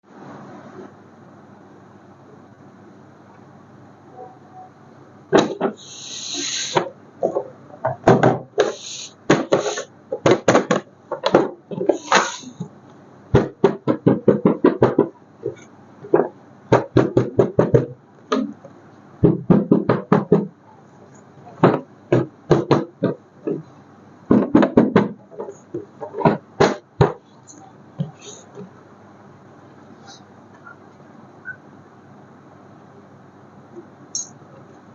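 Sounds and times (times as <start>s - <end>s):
short hissing rustles: 5.8s - 6.8s, 8.6s - 9.9s, 11.9s - 12.6s.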